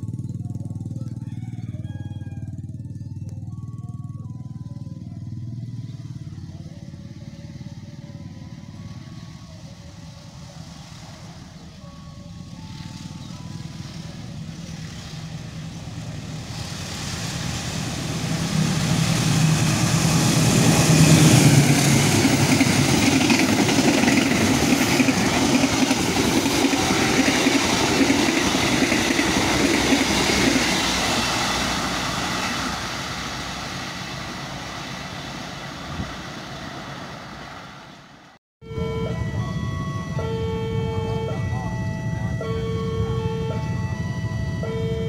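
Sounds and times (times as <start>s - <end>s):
locomotive engine drone: 0.0s - 45.0s
train wheels rushing on rails: 8.9s - 38.3s.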